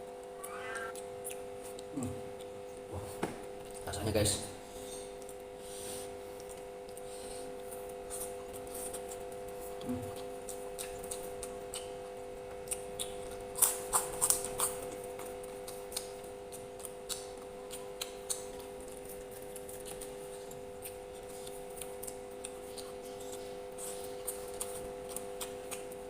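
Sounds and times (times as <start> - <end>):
steady low hum: 0.0 - 2.9
chewing: 6.4 - 26.0.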